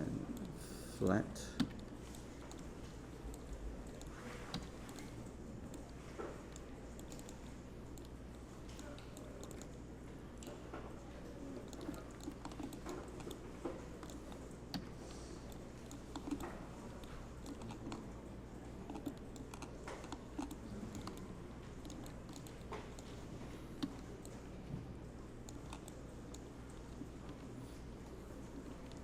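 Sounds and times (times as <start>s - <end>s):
keyboard keys clicking: 17.4s - 18.0s.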